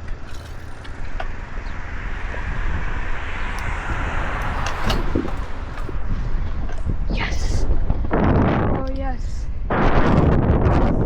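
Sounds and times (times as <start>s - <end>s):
rushing road noise: 0.0s - 11.0s
wind buffeting microphone: 0.0s - 11.0s.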